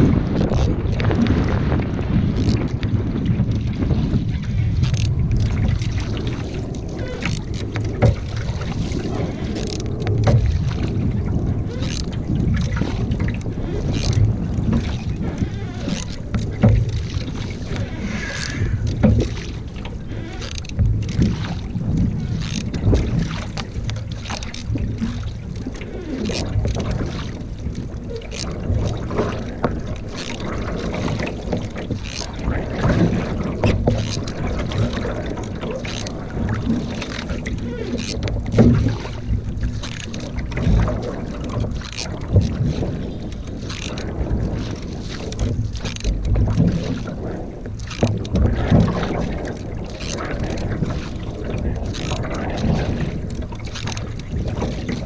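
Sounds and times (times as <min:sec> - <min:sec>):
water splashes and hull knocks: 0:00.0 - 0:55.0
wind on microphone: 0:00.0 - 0:55.0.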